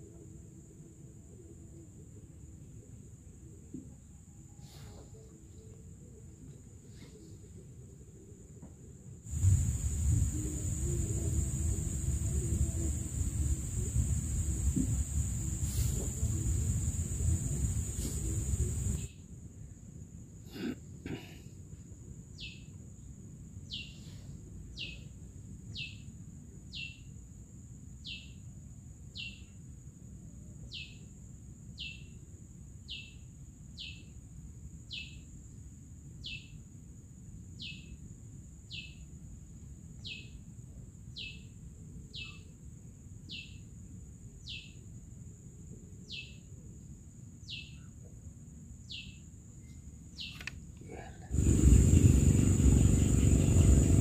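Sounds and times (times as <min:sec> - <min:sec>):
steady high-pitched drone: 0:50.9 - 0:54.0.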